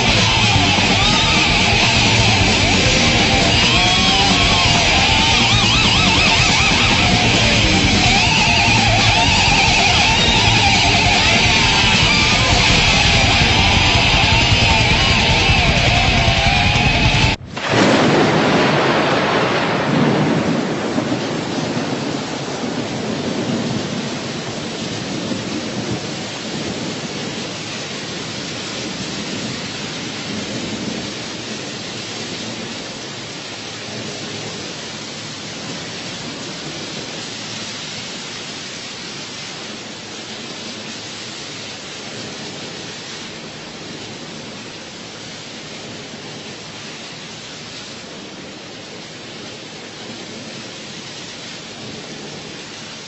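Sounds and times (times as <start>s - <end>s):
thunder rumble: 0.0s - 38.6s
heavy rain hiss: 0.0s - 53.0s.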